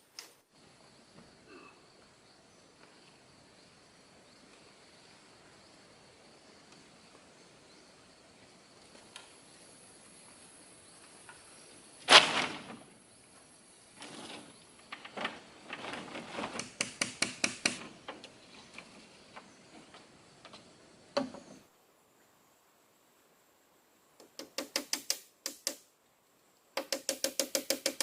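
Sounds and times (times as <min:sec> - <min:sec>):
insects droning: 0:00.0 - 0:28.0
tool striking wood: 0:16.7 - 0:17.9, 0:21.2 - 0:21.6, 0:24.2 - 0:25.8, 0:26.8 - 0:28.0.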